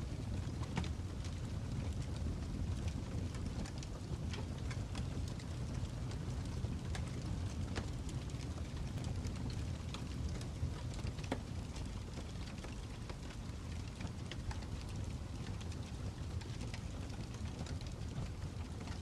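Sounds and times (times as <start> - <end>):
fire crackling: 0.0 - 19.0.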